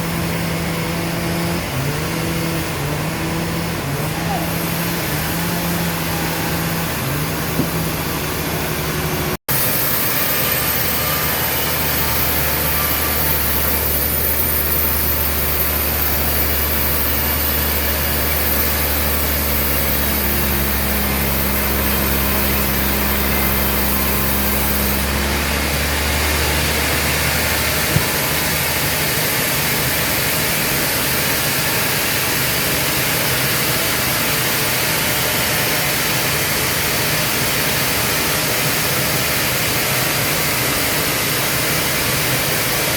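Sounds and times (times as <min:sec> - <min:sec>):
sawmill machinery running: 0:00.0 - 0:42.9.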